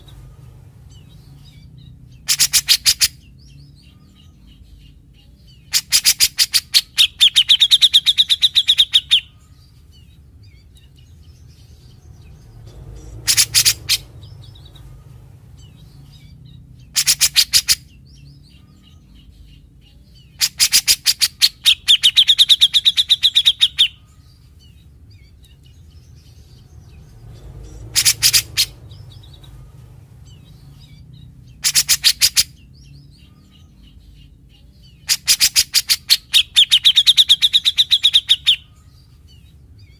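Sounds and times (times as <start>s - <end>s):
bird rattling calls: 2.2s - 3.2s, 13.0s - 14.9s, 16.9s - 17.9s, 27.6s - 29.6s, 31.6s - 32.6s.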